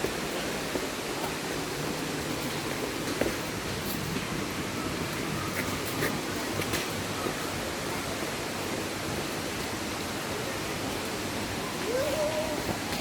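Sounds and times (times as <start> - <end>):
waterfall stream rushing: 0.0 - 13.0.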